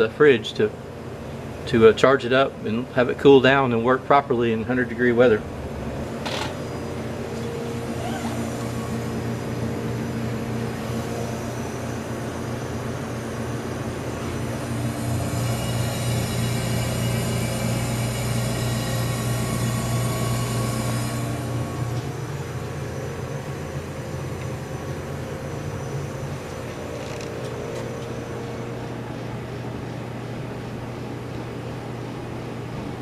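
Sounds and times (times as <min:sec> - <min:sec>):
compressor humming: 0:00.0 - 0:33.0.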